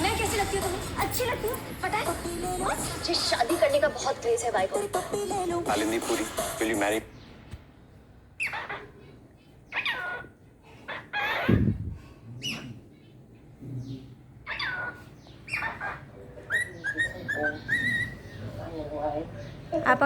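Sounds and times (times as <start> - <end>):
cockatiel chirping: 14.5 - 18.3.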